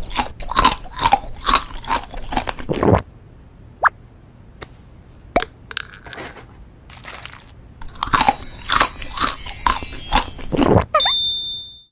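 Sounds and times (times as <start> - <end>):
crunchy food being chewed: 0.0 - 3.0, 6.9 - 10.9.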